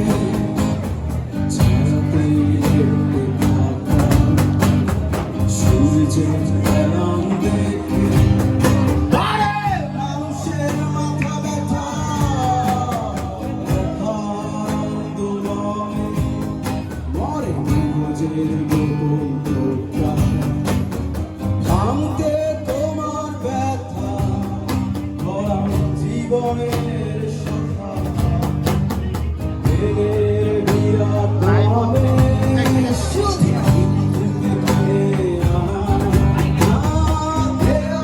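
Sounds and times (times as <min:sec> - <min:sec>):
person singing: 0:00.0 - 0:20.9, 0:29.6 - 0:38.0
guitar strumming: 0:00.0 - 0:38.0.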